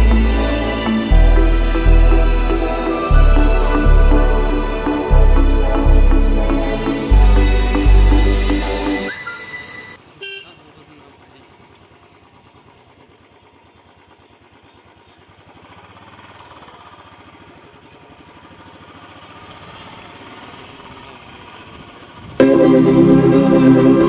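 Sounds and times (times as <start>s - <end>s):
motorcycle engine running: 0.0s - 8.9s, 10.0s - 24.0s
motorcycle horn toot: 9.2s - 10.7s.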